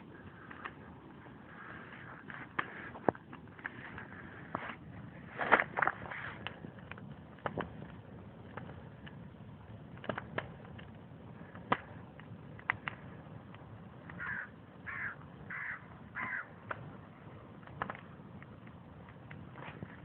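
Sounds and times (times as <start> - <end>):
bonfire crackling: 0.0 - 20.0
bird cawing: 14.1 - 16.6.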